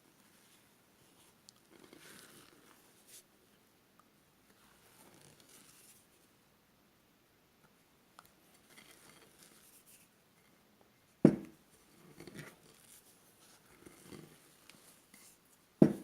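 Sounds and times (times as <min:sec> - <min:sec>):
sharp knock: 0:11.3 - 0:11.5.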